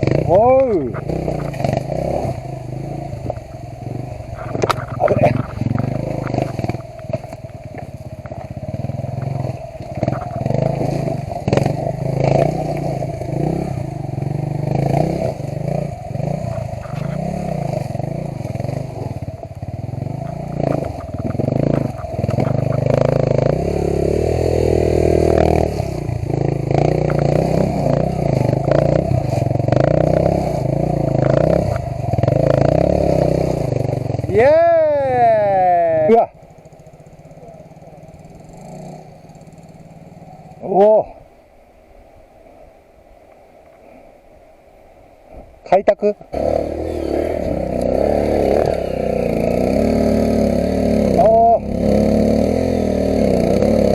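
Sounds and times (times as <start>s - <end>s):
motorcycle engine revving: 0.0s - 41.2s, 46.3s - 53.9s.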